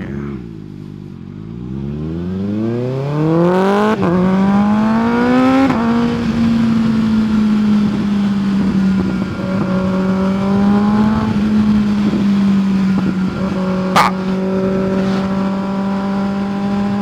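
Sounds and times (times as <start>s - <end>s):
motorcycle engine accelerating: 0.0s - 17.0s
wind rush: 3.6s - 17.0s.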